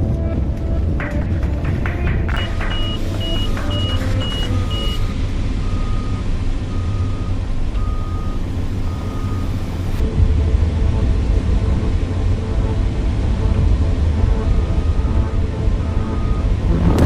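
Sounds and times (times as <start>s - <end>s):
heavy diesel machinery rumbling: 0.0s - 17.0s
high quick backup alarm: 2.4s - 9.6s
low backup alarm beeping: 2.4s - 10.0s, 14.6s - 16.7s.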